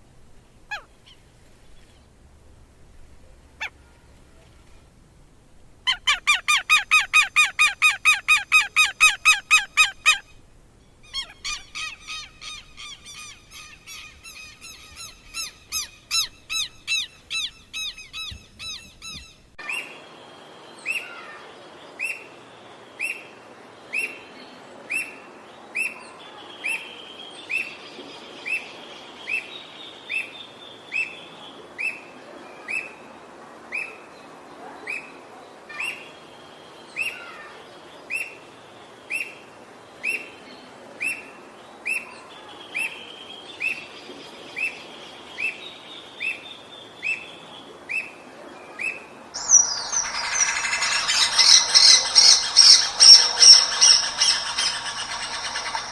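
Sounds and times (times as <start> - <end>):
loud busy bird sound: 48.7 - 55.9
soft bird trill: 49.4 - 55.9
songbird sharp downslurred call: 49.4 - 55.9.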